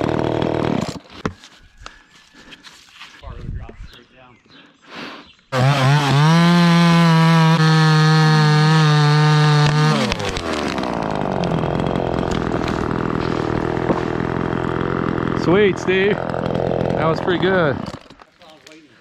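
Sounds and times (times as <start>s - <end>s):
chainsaw running: 0.0s - 1.3s, 5.5s - 18.4s.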